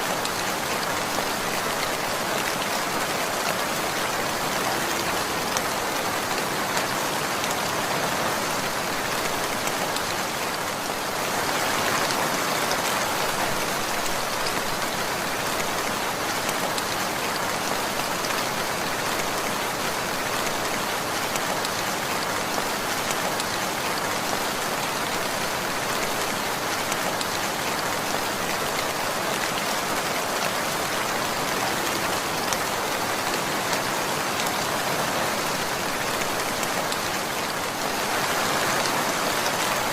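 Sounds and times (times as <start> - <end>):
raindrops ticking on a surface: 8.4 - 39.9.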